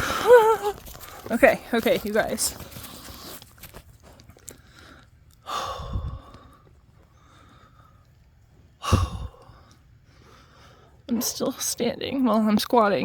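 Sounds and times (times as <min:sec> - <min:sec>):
loud breathy breath: 0:04.4 - 0:08.1, 0:08.8 - 0:11.1.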